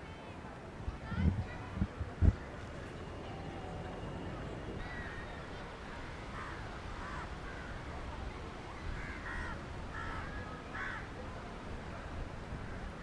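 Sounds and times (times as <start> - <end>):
low background noise: 0.0 - 13.0
crows cawing: 4.8 - 5.2, 6.4 - 7.8, 9.0 - 11.0.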